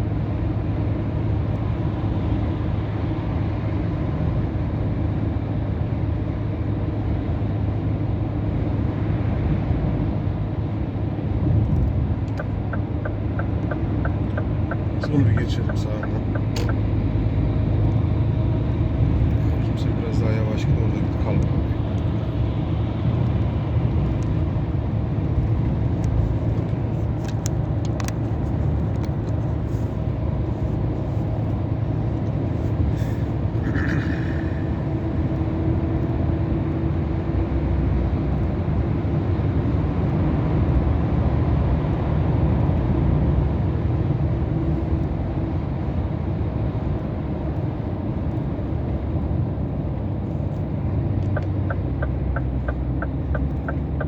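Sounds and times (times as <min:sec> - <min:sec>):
road noise: 0:00.0 - 0:54.0
truck engine drone: 0:00.0 - 0:54.0
quick evenly spaced ticks: 0:12.3 - 0:16.8, 0:51.2 - 0:54.0.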